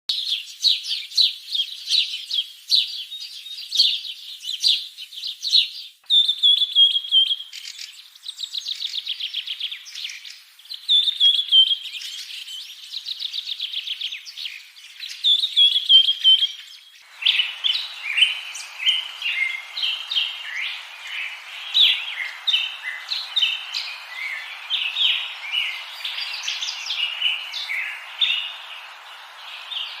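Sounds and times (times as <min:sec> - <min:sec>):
songbirds chirping and singing: 0:00.2 - 0:30.0
overlapping bird chirps: 0:03.0 - 0:30.0
steady hiss: 0:06.0 - 0:30.0.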